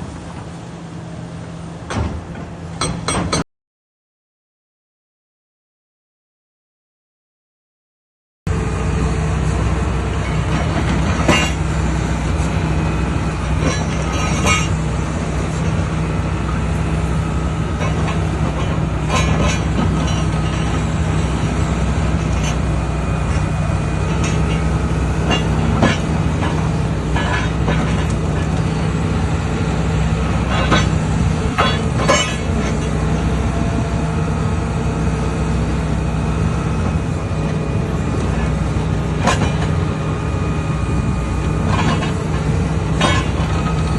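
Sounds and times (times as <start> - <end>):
excavator diesel engine running: 0.0 - 3.4, 8.5 - 43.9
metallic clanks and knocks: 1.9 - 3.4, 10.2 - 11.6, 13.5 - 14.8, 17.8 - 20.9, 24.1 - 28.7, 30.3 - 33.4, 39.2 - 39.8, 41.6 - 43.9.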